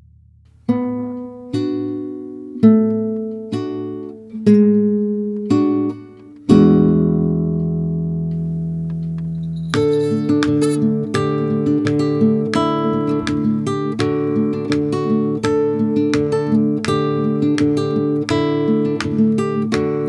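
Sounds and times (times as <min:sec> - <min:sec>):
guitar chords ringing: 0:06.7 - 0:20.0.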